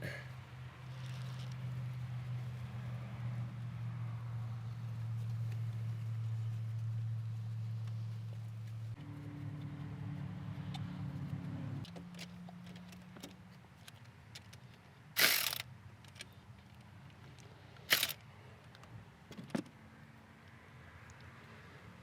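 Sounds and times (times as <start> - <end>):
hand tools clicking and clattering: 11.9 - 16.4, 17.9 - 18.2
loud rasping bursts: 15.2 - 15.6, 17.9 - 18.2.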